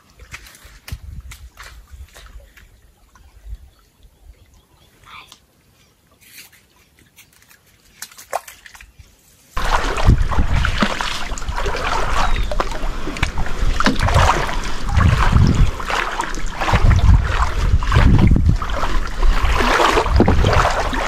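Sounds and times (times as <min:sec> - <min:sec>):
water splashing and sloshing: 0:00.0 - 0:04.5, 0:05.6 - 0:21.0.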